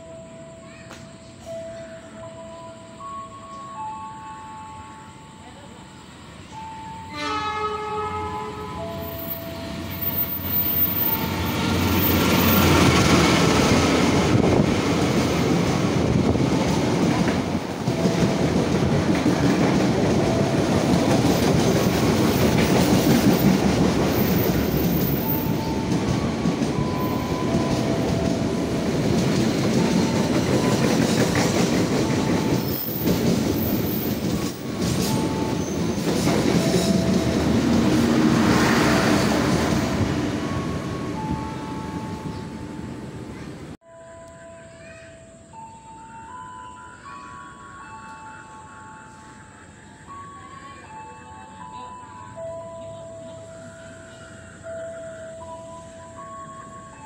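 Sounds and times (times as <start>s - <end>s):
train horn: 6.9s - 12.9s
train wheels rumbling on rails: 8.7s - 43.8s.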